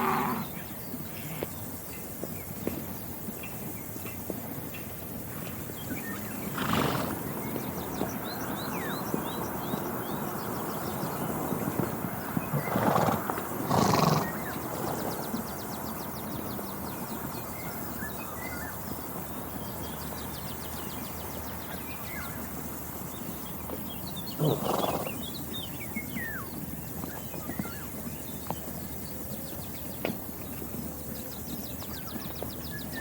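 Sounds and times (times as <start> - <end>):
horse calling: 0.0 - 0.6, 6.2 - 7.3, 12.4 - 15.4, 24.3 - 25.2
small birds chirping: 0.0 - 33.0.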